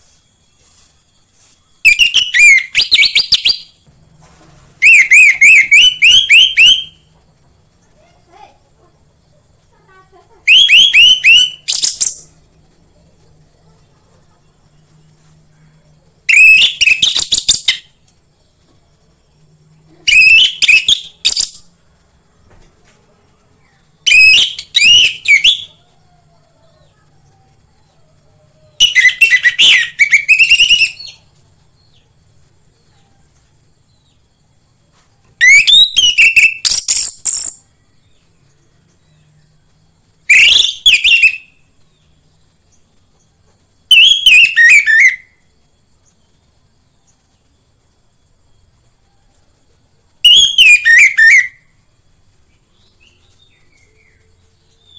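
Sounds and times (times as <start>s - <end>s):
faint high hiss: 0.0s - 6.0s.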